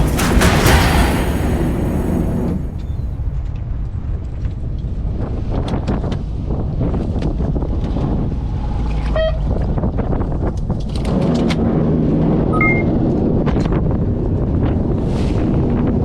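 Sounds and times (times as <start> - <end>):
low hum: 0.0 - 5.1
short electronic beeps: 12.6 - 13.0.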